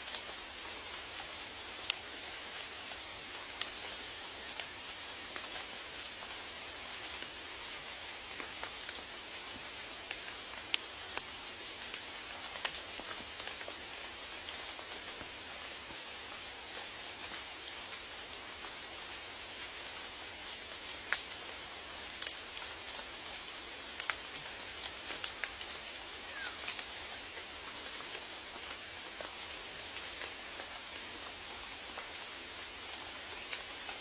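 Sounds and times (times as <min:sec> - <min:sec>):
steady rain hiss: 0:00.0 - 0:34.0.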